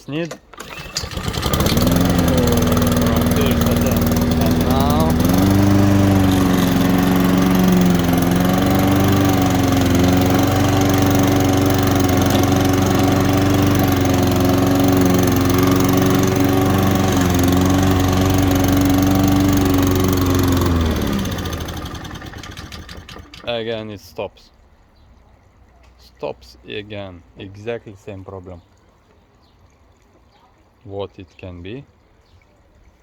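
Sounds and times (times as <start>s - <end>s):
lawn mower engine running: 0.4s - 23.6s.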